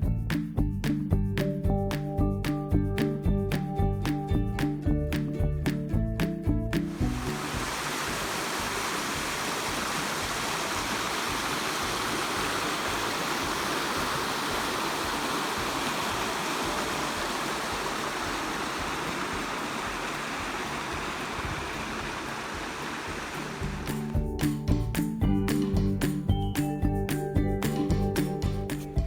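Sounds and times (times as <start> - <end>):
stream rushing: 6.2 - 25.8.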